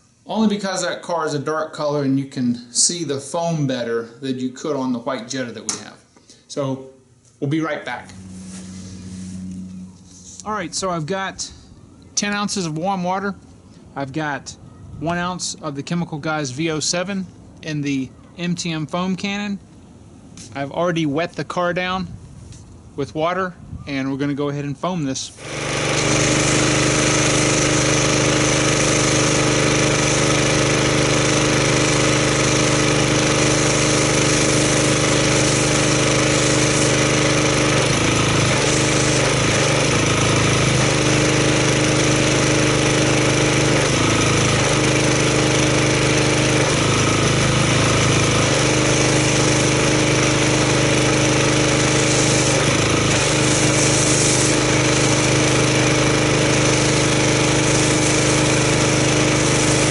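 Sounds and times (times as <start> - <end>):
pressure washer engine running: 7.9 - 11.6, 25.3 - 59.9
hiss of foam spray: 32.2 - 37.4, 38.0 - 39.8, 51.7 - 55.2, 57.5 - 59.9.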